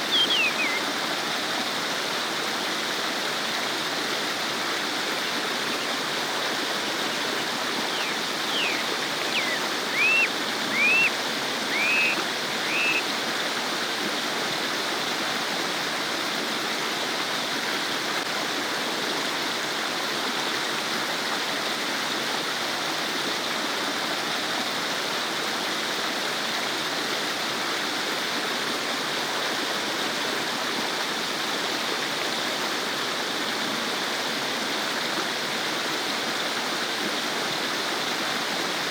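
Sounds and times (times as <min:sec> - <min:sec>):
short high bird chirps: 0:00.0 - 0:00.8, 0:07.9 - 0:13.0
stream babbling: 0:00.0 - 0:15.9.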